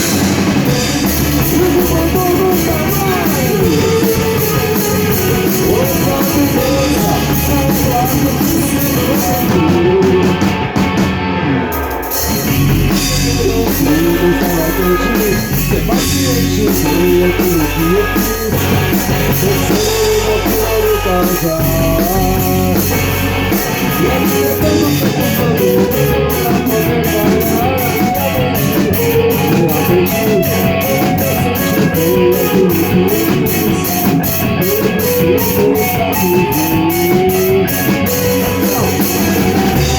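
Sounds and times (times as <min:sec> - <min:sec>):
person singing: 0:00.0 - 0:39.9
rock band playing live: 0:00.0 - 0:39.9.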